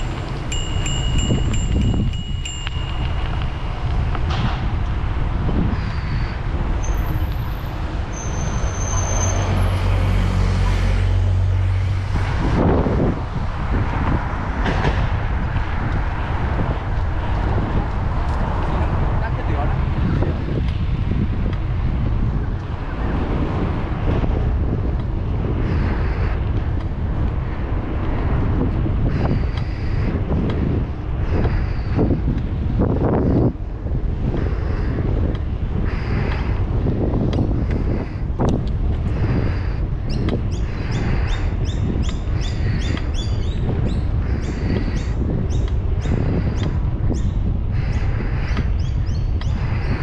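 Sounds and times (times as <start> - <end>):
engine hum: 0.0 - 50.0
road traffic passing: 0.0 - 50.0
wind buffeting microphone: 0.0 - 50.0
faint high squeal: 8.1 - 9.7.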